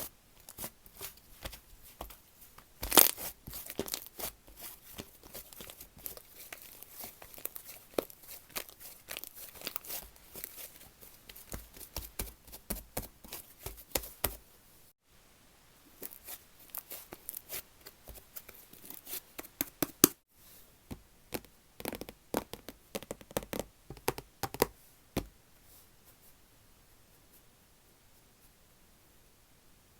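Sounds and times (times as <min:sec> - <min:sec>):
slime crackling and popping: 0:02.8 - 0:04.2.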